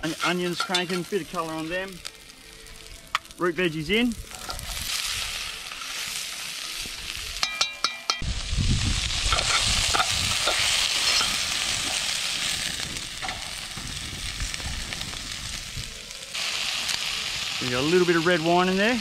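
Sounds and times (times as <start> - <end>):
vegetables sizzling in a pot: 0.0 - 7.6, 8.2 - 19.0.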